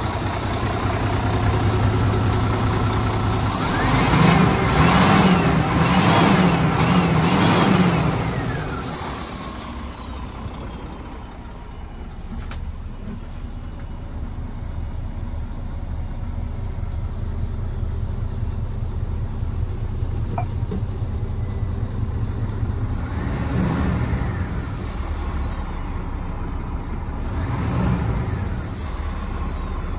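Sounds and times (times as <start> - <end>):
truck engine revving: 0.0 - 11.6, 21.9 - 26.4, 27.0 - 29.9.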